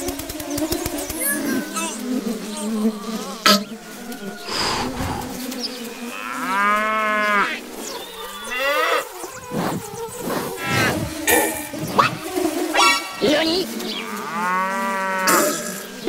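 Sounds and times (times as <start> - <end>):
cow mooing: 6.0 - 9.1, 14.0 - 15.8.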